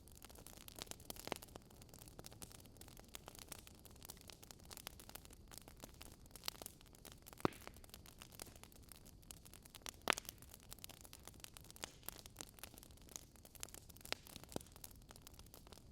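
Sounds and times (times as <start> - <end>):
fire popping: 0.0 - 15.9
wood fire crackling: 0.0 - 15.9.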